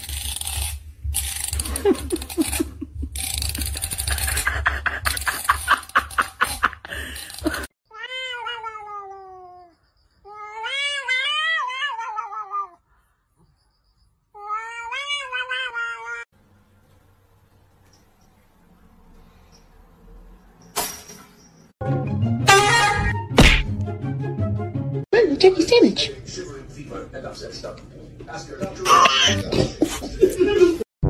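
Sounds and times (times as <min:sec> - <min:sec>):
rough scratching and clicking: 0:00.0 - 0:07.7
cat yowling: 0:07.9 - 0:09.7, 0:10.3 - 0:12.8, 0:14.4 - 0:16.3.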